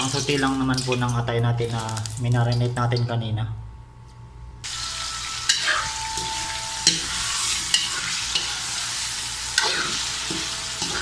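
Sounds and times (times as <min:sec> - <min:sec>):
meat sizzling in a pan: 0:04.6 - 0:11.0.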